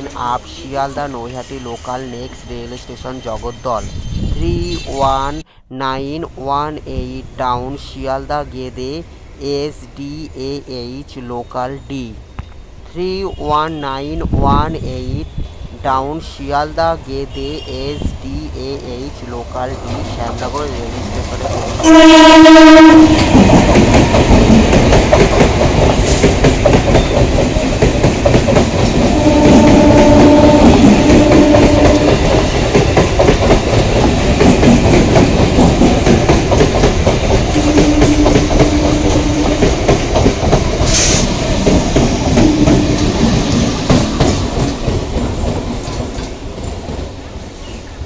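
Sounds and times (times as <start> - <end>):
train horn blast: 21.8 - 23.4, 29.1 - 32.2, 37.5 - 39.6
train wheels clacking over rail joints: 22.4 - 47.2.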